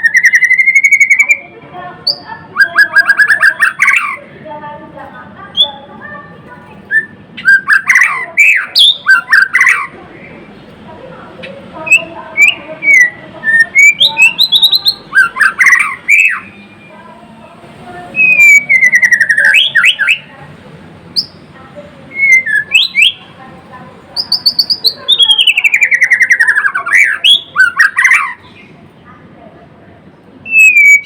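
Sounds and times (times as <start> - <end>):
bird singing whistled phrases: 0.0 - 1.4, 2.0 - 4.2, 6.9 - 9.9, 11.8 - 16.9, 18.2 - 20.3, 22.1 - 23.2, 24.2 - 28.4, 30.4 - 31.0.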